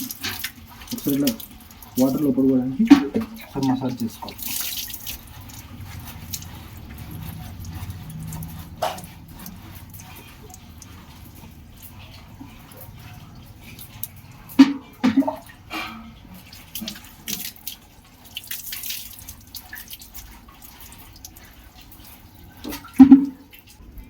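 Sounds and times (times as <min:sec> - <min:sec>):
water splashing and running: 0:00.0 - 0:24.0
sudden loud splashes or knocks: 0:02.8 - 0:04.1, 0:14.5 - 0:16.1, 0:22.7 - 0:23.5.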